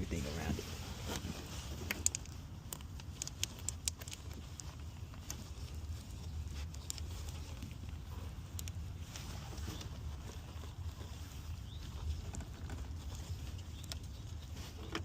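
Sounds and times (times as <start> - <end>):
light clicks and taps of parts: 1.8 - 8.8.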